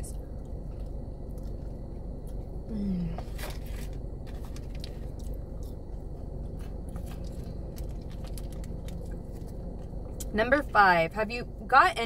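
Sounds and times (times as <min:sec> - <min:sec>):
low hum: 0:00.0 - 0:12.0
person chewing: 0:00.1 - 0:02.7, 0:03.4 - 0:10.3.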